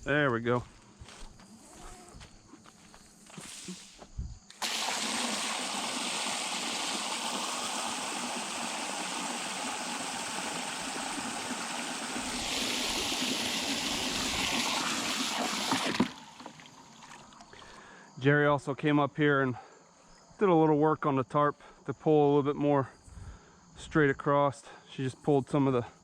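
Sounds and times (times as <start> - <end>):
water rushing from a hose: 3.4 - 17.7.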